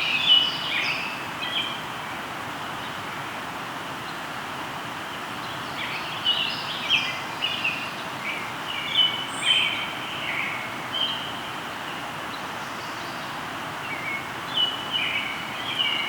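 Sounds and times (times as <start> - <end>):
songbird chirping and trilling: 0.0 - 1.9, 5.4 - 16.0
river flowing: 0.0 - 16.0.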